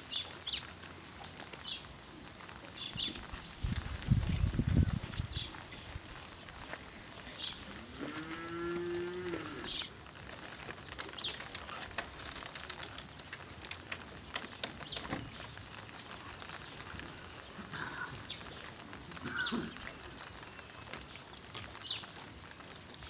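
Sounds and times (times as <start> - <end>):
cow mooing: 7.8 - 9.8.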